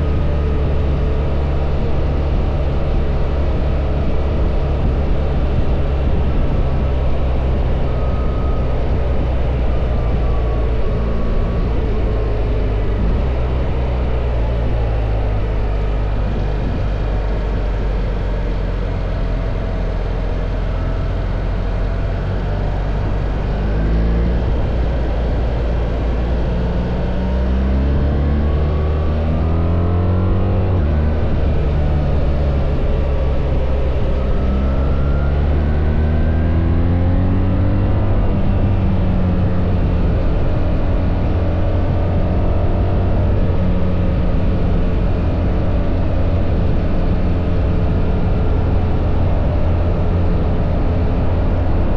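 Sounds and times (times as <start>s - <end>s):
motorcycle engine accelerating: 0.0s - 51.9s.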